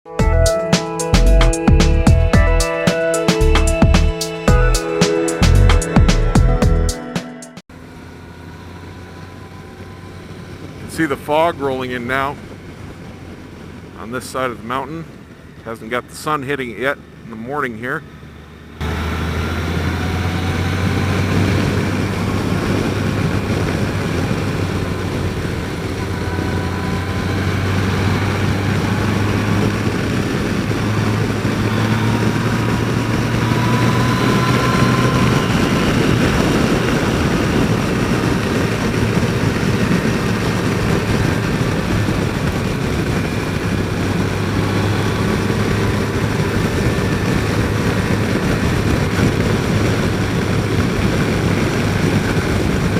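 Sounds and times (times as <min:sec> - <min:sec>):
motorcycle engine hum: 0:00.0 - 0:52.9
wind noise: 0:09.1 - 0:17.2, 0:18.8 - 0:52.9.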